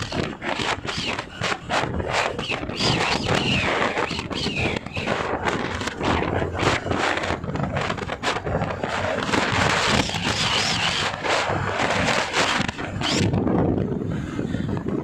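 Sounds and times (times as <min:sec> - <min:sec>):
bike riding noise: 0:00.0 - 0:15.0
wind buffeting microphone: 0:00.0 - 0:15.0.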